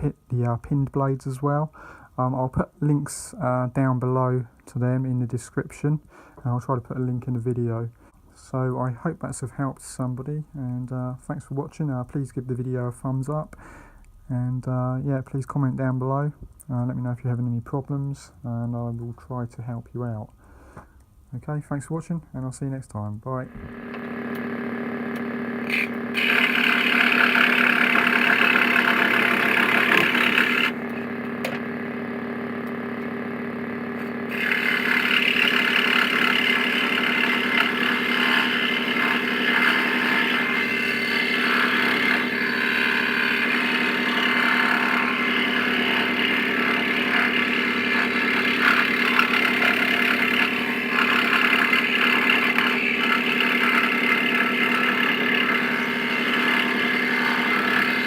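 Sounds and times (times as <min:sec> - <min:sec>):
electric scroll saw running: 0:23.4 - 0:58.0.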